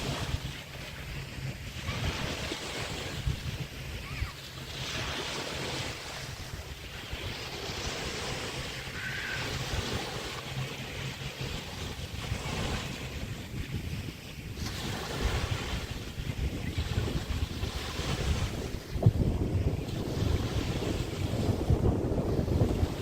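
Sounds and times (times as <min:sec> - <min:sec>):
waves washing onto sand: 0:00.0 - 0:23.0
wind rumbling on microphone: 0:00.0 - 0:23.0.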